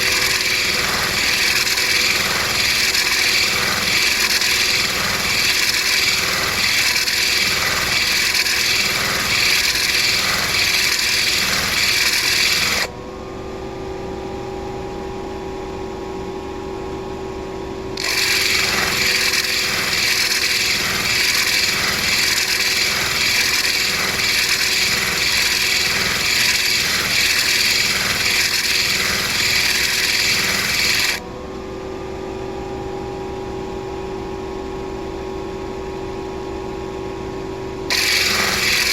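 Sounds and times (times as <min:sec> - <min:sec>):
stone scraping on grinding wheel: 0:00.0 - 0:12.9, 0:18.0 - 0:31.2, 0:37.9 - 0:38.9
motor humming: 0:00.0 - 0:13.0, 0:18.0 - 0:31.2, 0:37.9 - 0:38.9.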